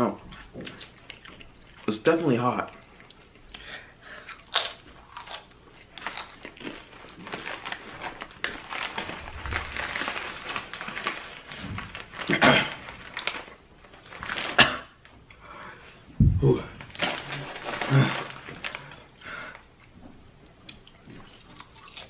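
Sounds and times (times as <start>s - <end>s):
chips crunching being eaten: 4.2s - 11.4s, 20.7s - 22.0s
bag rustling: 7.2s - 12.3s.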